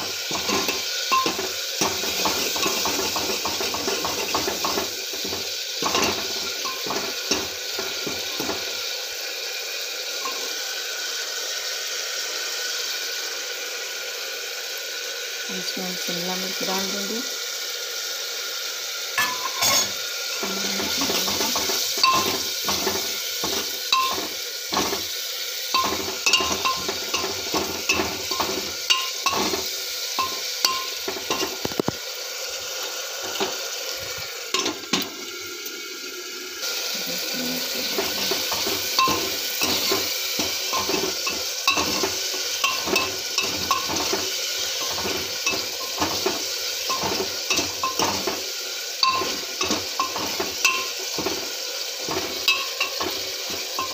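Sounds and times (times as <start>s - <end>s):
spatula scraping and tapping pan: 0.0s - 8.8s, 19.2s - 32.0s, 33.2s - 35.1s, 37.8s - 53.9s
vegetables sizzling in hot oil: 0.0s - 53.9s.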